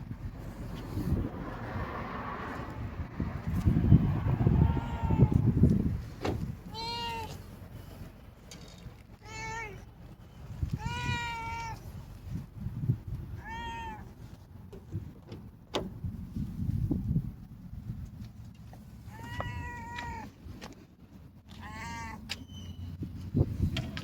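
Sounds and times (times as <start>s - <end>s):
cat meowing: 4.4s - 5.6s, 6.7s - 7.4s, 9.2s - 9.9s, 10.7s - 11.9s, 13.3s - 14.2s, 19.1s - 20.3s, 21.5s - 22.3s.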